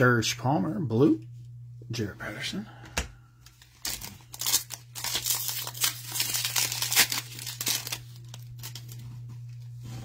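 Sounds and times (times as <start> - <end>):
low electrical hum: 0.0 - 10.0
plastic wrapper crinkling: 3.4 - 9.6.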